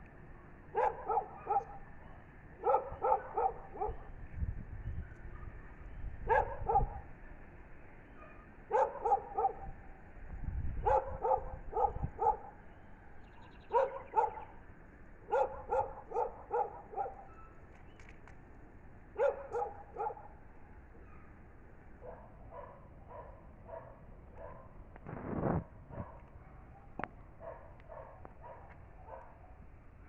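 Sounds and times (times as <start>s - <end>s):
dog barking: 0.7s - 4.1s, 5.2s - 7.1s, 8.2s - 9.8s, 10.8s - 12.6s, 13.6s - 14.6s, 15.3s - 17.4s, 19.2s - 20.4s, 22.0s - 24.8s, 25.9s - 29.5s.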